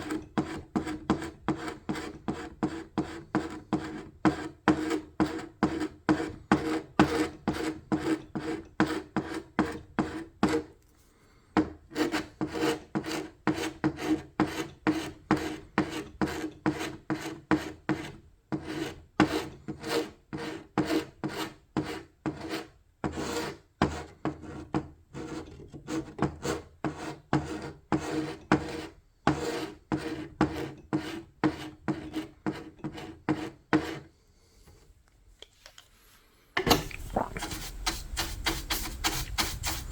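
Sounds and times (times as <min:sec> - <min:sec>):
abrasive tool rubbing on wood: 0:36.6 - 0:39.9.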